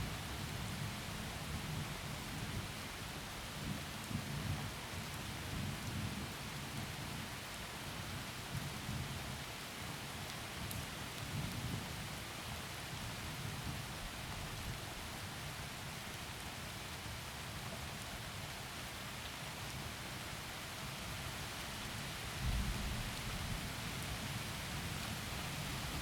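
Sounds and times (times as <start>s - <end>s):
heavy rain hissing: 21.3s - 26.0s.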